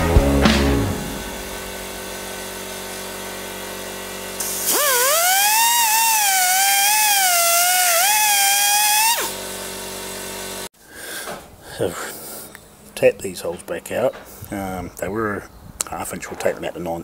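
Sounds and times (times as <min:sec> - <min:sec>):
electric drill whining: 0:01.0 - 0:10.7.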